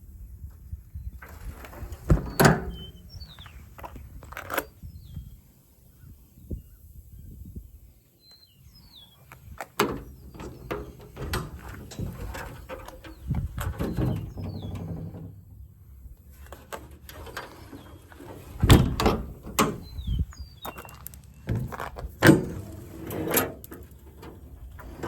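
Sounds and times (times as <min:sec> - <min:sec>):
bird chirping: 0:02.3 - 0:03.7, 0:08.2 - 0:09.4, 0:12.6 - 0:15.0, 0:19.7 - 0:21.6
metal clicks and rattles: 0:09.6 - 0:15.4.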